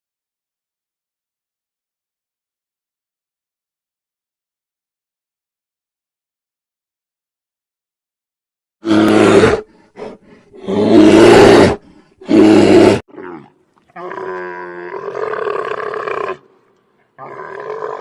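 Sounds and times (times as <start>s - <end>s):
lion roaring: 8.8s - 16.5s, 17.2s - 18.0s.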